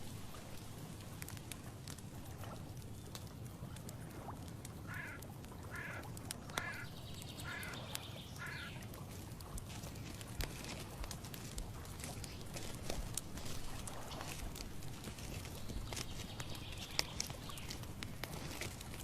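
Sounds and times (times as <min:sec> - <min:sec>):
bird calling: 0:04.9 - 0:08.9, 0:15.2 - 0:18.7
faint ticks: 0:04.9 - 0:19.0.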